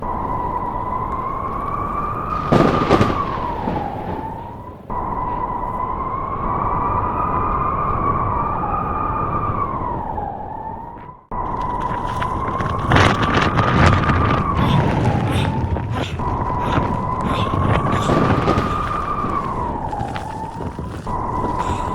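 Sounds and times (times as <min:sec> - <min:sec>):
sharp crackles and clicks: 0:00.0 - 0:06.1, 0:11.3 - 0:21.9
blizzard wind howling: 0:00.0 - 0:21.9
wavering whistle-like tone: 0:00.0 - 0:21.9.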